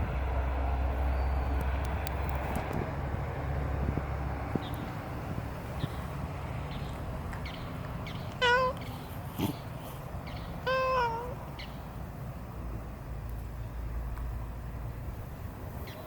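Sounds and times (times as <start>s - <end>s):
steady low rumble: 0.0s - 16.0s
cat meowing: 8.4s - 8.8s, 10.6s - 11.4s.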